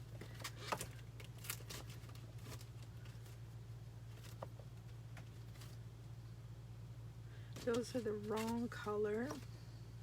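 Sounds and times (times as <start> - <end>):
low electrical hum: 0.0 - 10.0
plastic packets clicking and rustling: 0.1 - 3.4.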